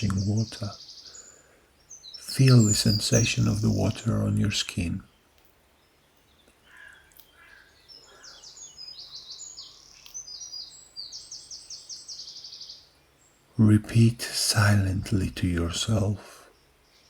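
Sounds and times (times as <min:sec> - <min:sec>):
birds singing: 0:00.0 - 0:17.0.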